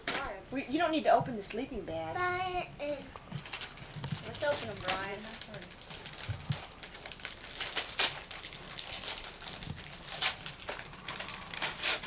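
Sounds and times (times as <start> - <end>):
wrapping paper tearing and crinkling: 3.4 - 12.0.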